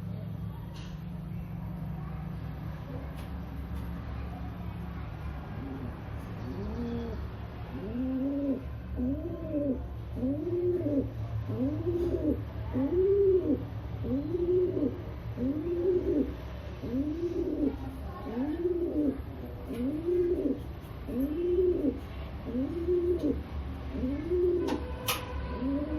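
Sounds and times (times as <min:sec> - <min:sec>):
pigeon cooing: 0:05.4 - 0:25.9.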